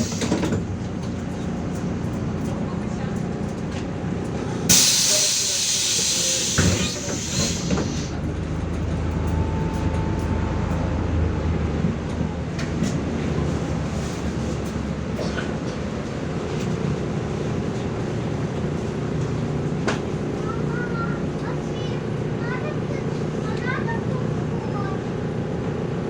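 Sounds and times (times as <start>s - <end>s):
bus engine rumble: 0.0s - 26.0s
air hiss: 4.7s - 8.1s.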